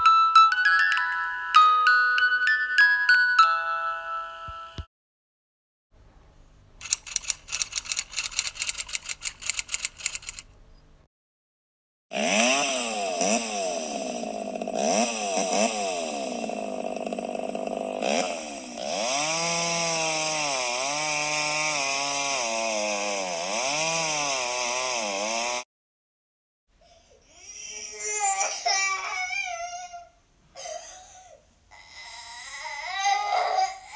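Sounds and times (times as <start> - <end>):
chainsaw engine revving: 12.1 - 25.7.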